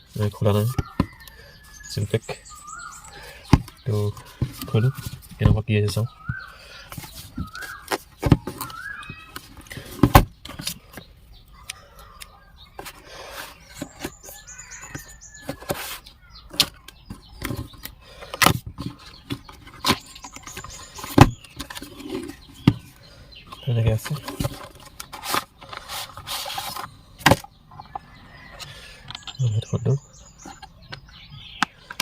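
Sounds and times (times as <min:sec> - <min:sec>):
small bird chirping: 0:00.0 - 0:32.0
scratchy packaging scrapes: 0:24.1 - 0:27.0.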